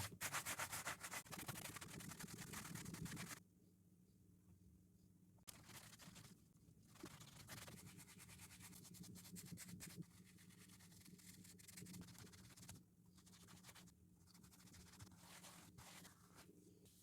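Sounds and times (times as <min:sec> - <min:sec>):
brush scrubbing a shoe: 0:00.0 - 0:03.4, 0:14.4 - 0:16.5.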